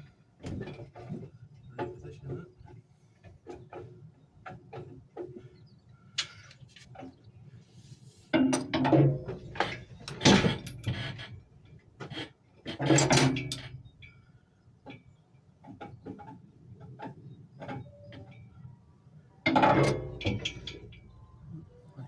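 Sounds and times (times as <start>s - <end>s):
tools and metal parts clunking: 8.3s - 11.4s, 12.7s - 13.8s, 19.4s - 21.4s.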